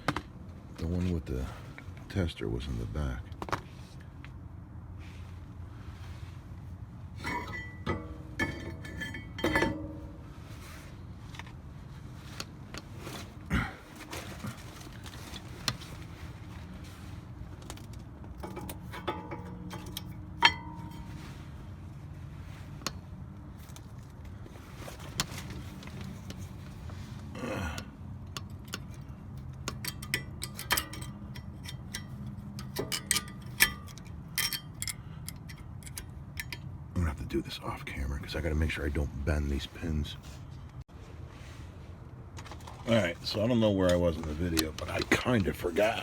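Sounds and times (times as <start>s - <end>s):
low steady hum: 0.0s - 46.0s
metallic clicks of brake parts: 17.6s - 21.4s, 27.7s - 36.8s, 43.8s - 46.0s.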